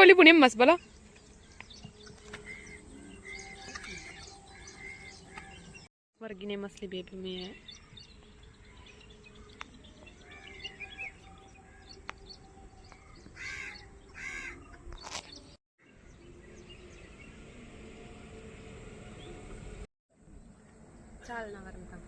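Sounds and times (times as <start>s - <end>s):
outdoor background noise: 0.0s - 22.0s
small birds chirping: 0.1s - 17.6s
crow cawing: 13.4s - 14.6s.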